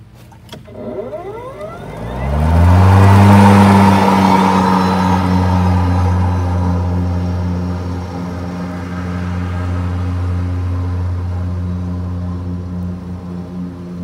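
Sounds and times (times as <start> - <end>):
electric lawnmower motor whine: 0.5 - 8.5.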